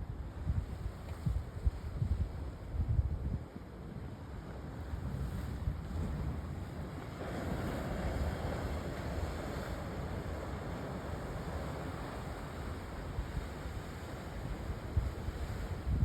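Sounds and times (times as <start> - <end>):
wind buffeting microphone: 0.0 - 3.5, 4.8 - 16.0
sea waves washing onto shore: 4.1 - 16.0.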